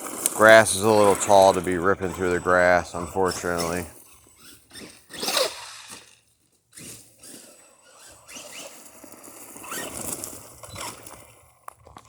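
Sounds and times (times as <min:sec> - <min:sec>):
toy truck electric motor revving: 0:00.0 - 0:12.0.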